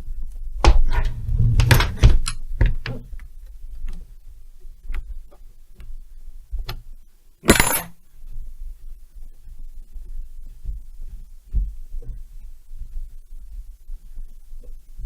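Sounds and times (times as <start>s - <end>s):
metal tools clicking and knocking: 7.4s - 7.9s
metallic clatter: 7.4s - 7.9s.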